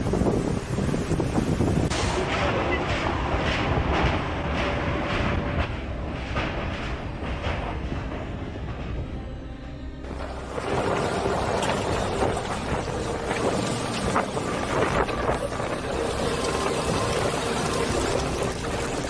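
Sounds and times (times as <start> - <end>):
rushing water: 0.0 - 3.4, 10.0 - 19.0
gusty wind: 0.0 - 19.0
wind buffeting microphone: 0.0 - 19.0.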